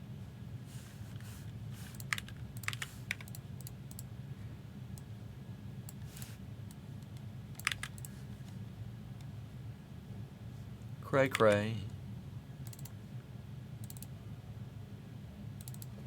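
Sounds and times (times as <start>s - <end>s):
steady low hum: 0.0s - 16.0s
computer keyboard clicks: 1.9s - 4.1s, 7.1s - 8.1s, 12.6s - 12.9s, 13.8s - 14.1s, 15.6s - 15.9s.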